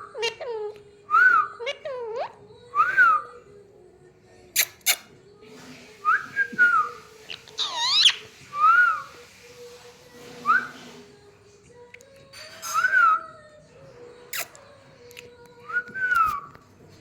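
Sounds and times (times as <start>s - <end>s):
parrot whistling and calling: 6.1s - 9.2s.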